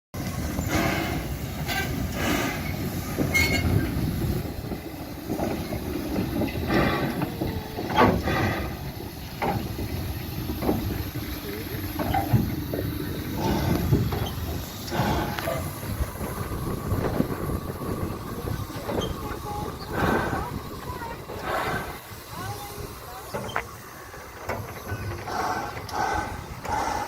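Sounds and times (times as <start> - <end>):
train low rumble: 0.2 - 27.0
people talking: 6.7 - 8.7, 10.5 - 15.9, 16.9 - 26.3.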